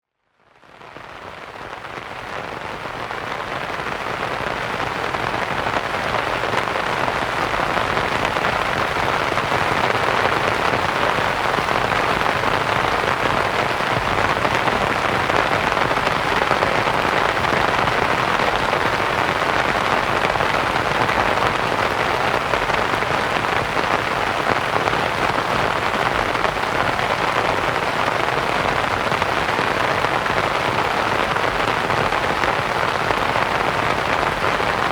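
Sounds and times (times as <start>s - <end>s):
rain pattering on a tent: 0.0s - 34.9s.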